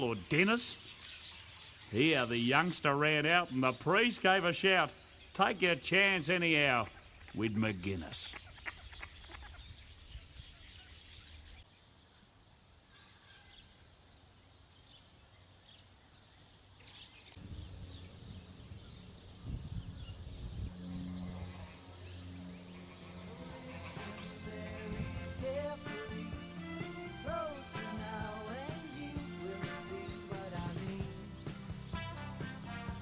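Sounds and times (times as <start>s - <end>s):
bird calls: 0.0s - 26.4s.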